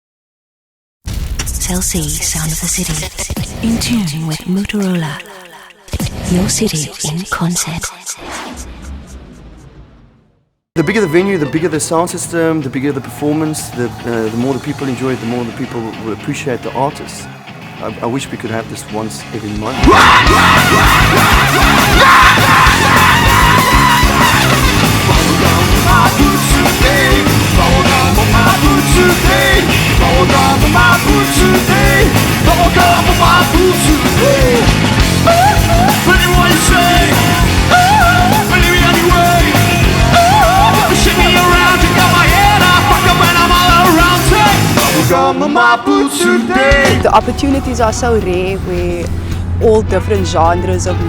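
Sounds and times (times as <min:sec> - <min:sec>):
live rock band: 0:19.2 - 0:47.9
person shouting vocals: 0:19.7 - 0:24.4.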